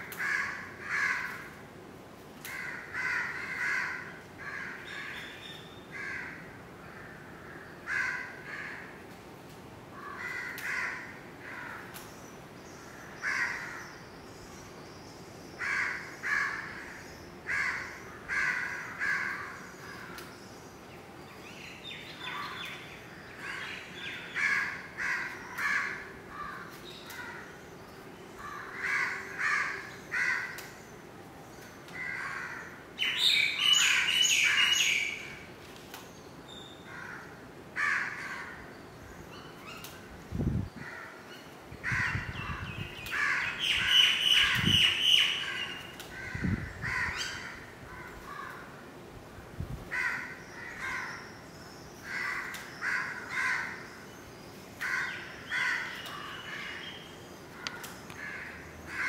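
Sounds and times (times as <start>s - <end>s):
birds giving harsh calls: 31.9s - 35.5s, 41.8s - 48.7s, 52.0s - 59.0s.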